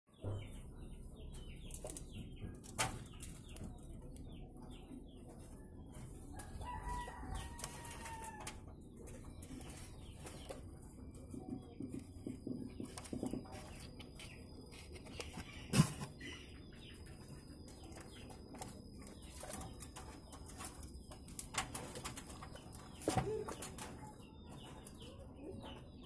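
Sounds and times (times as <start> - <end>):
birds calling: 6.4 - 26.0.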